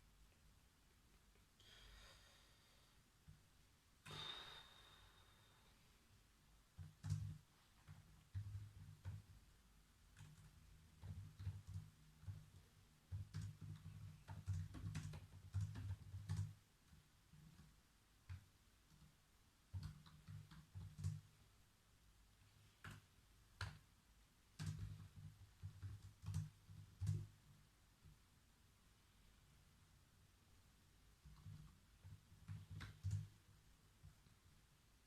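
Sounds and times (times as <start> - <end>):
typing on computer keyboard: 6.8 - 9.4, 10.1 - 17.7, 19.7 - 21.3, 24.6 - 27.4, 31.2 - 33.4.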